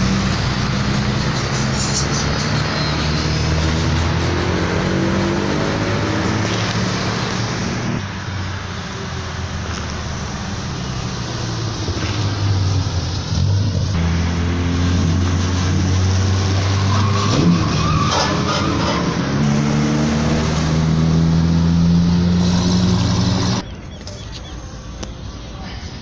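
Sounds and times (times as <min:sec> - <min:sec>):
vehicle engine running: 0:00.0 - 0:16.6.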